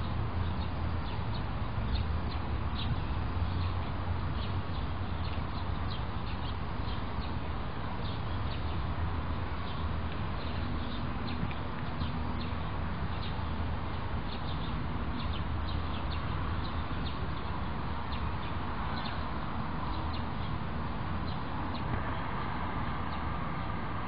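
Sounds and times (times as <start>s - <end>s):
steady low hum and hiss: 0.0s - 24.0s.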